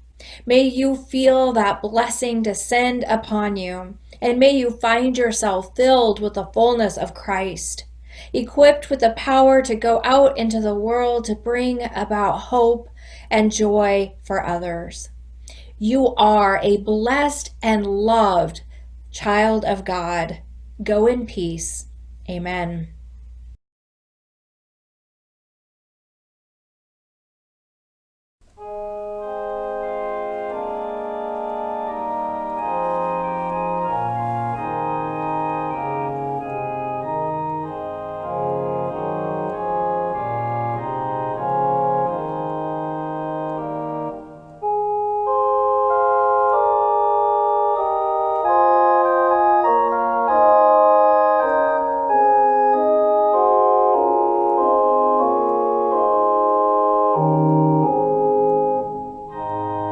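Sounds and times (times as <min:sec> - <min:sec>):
organ playing sustained chords: 0:28.5 - 0:59.9.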